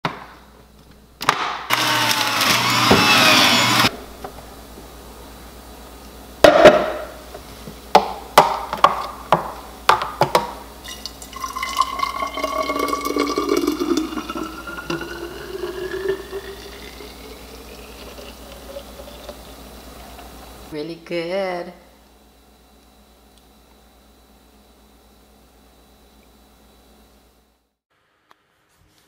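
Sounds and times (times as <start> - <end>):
juice pouring into glass bottle: 10.8 - 19.4.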